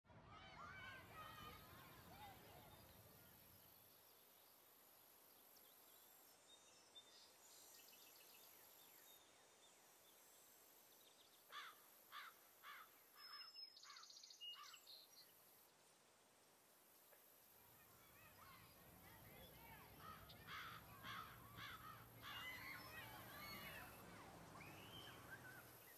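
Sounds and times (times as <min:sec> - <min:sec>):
bird calls: 0:11.5 - 0:15.1, 0:17.8 - 0:25.9.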